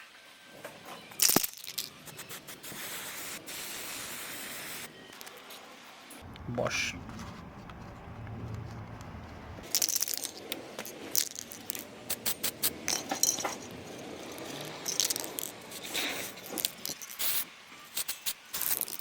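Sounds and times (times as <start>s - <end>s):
metal parts clinking and rattling: 1.2s - 2.1s, 11.2s - 19.0s.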